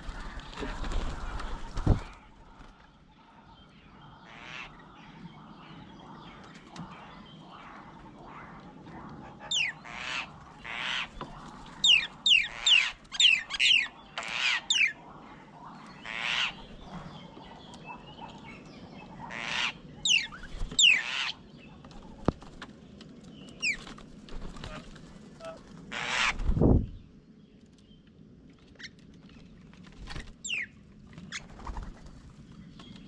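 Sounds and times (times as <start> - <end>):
harsh rasping bird calls: 4.1 - 22.2, 24.5 - 26.4.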